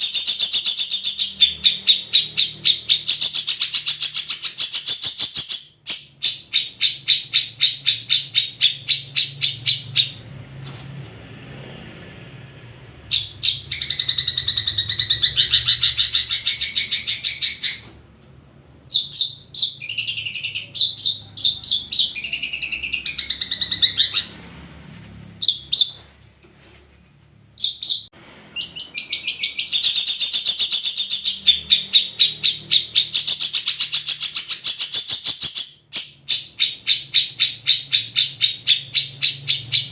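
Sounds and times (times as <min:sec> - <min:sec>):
shrike singing: 0:18.8 - 0:24.4.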